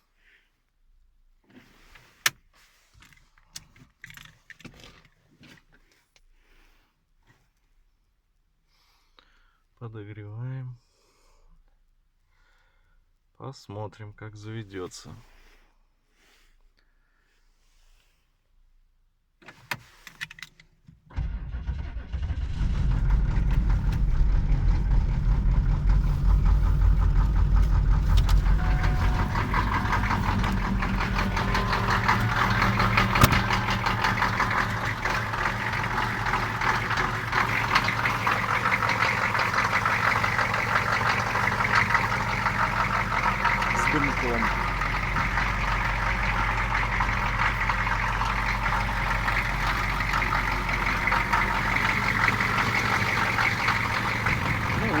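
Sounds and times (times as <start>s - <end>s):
diesel engine cranking: 21.1s - 55.0s
diesel engine idling with knock: 21.2s - 55.0s.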